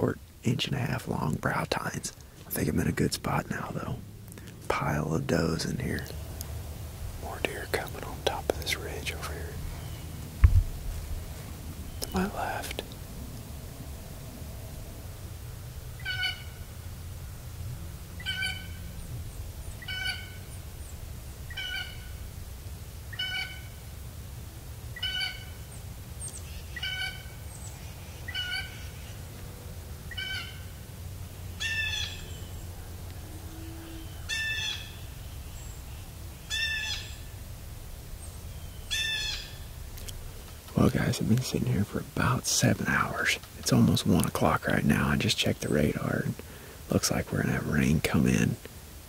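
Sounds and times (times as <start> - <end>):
bird harsh calls: 15.9 - 16.7, 18.2 - 22.3, 23.1 - 23.8, 25.0 - 29.2, 30.1 - 30.8, 31.5 - 37.4, 38.2 - 40.1.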